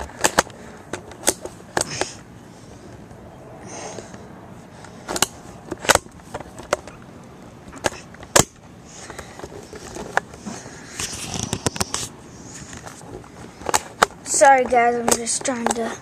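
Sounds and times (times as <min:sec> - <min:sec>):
handling clicks and knocks: 0:00.0 - 0:02.2, 0:04.8 - 0:12.0, 0:12.6 - 0:16.0.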